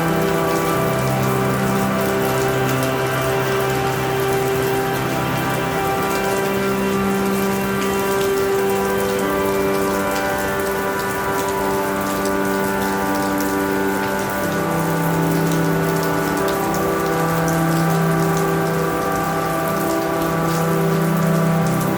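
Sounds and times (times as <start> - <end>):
soft drone of held notes: 0.0 - 21.9
steady rain falling: 0.0 - 21.9.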